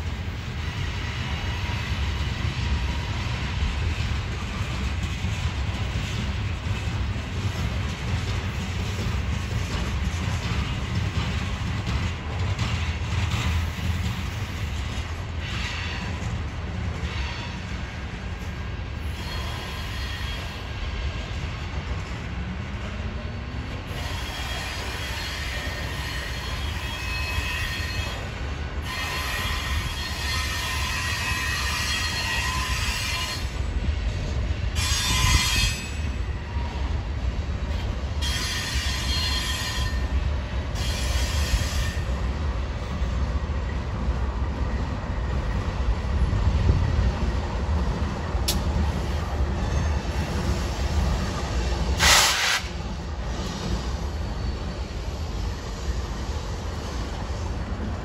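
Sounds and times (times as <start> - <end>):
train rumbling on rails: 0.0 - 58.0
high-pitched wheel squeal: 24.0 - 33.5, 38.2 - 40.1.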